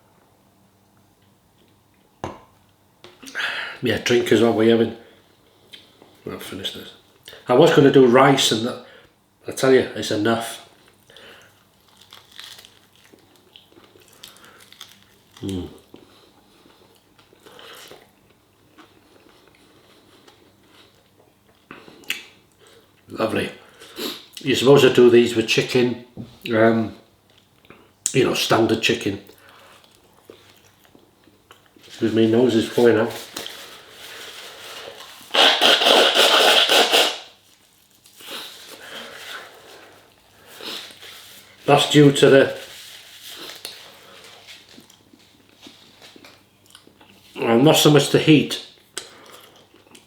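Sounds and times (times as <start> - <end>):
person chewing food: 10.8 - 23.1, 29.3 - 31.9, 43.3 - 47.3, 48.8 - 50.0
person sniffing: 23.8 - 24.3
rustling: 31.8 - 41.7, 42.4 - 46.2
person blowing nose: 33.6 - 37.4.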